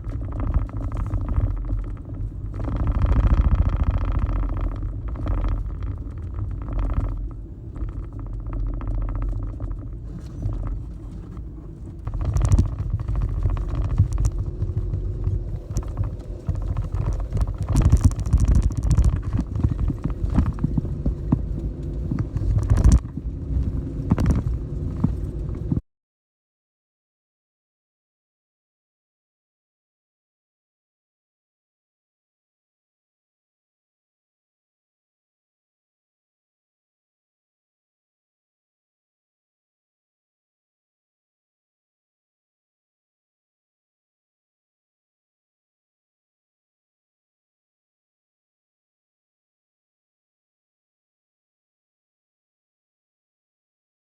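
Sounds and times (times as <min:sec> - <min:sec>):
truck driving on dirt road: 0:00.0 - 0:25.8
knocks and rattles from bumps: 0:00.1 - 0:25.8.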